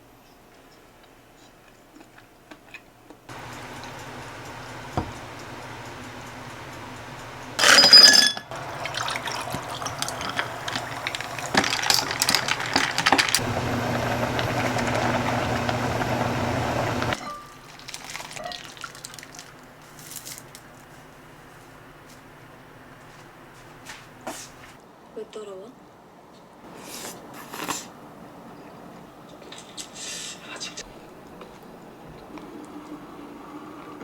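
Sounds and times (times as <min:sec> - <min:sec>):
water running: 0:03.3 - 0:24.8
glass or dishes clinking: 0:07.6 - 0:12.3, 0:17.2 - 0:17.7.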